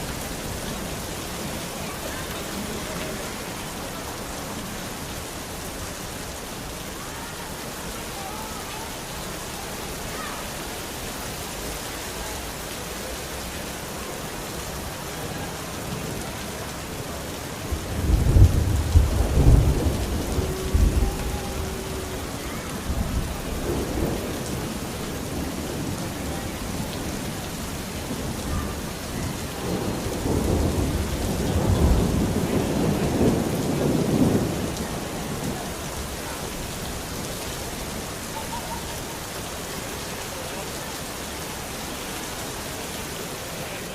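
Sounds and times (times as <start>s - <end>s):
steady rain falling: 0.0s - 43.9s
thunder rumbling: 17.1s - 37.2s.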